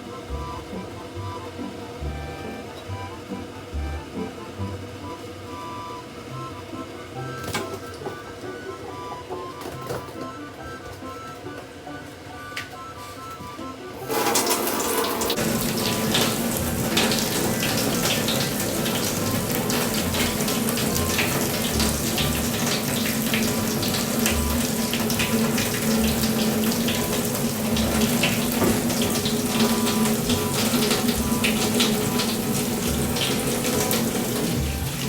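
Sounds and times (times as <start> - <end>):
water running from a tap: 14.0 - 35.0.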